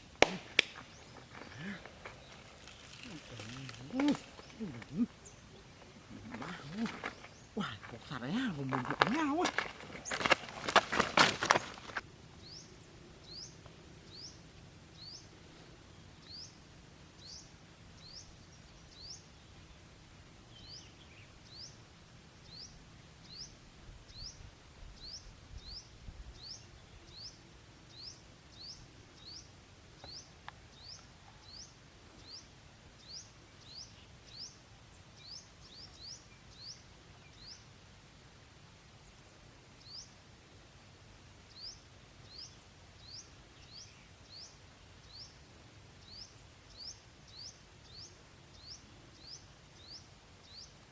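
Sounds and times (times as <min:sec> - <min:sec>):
bird chirping: 0:00.0 - 0:14.4
faint outdoor background noise: 0:00.0 - 0:50.9.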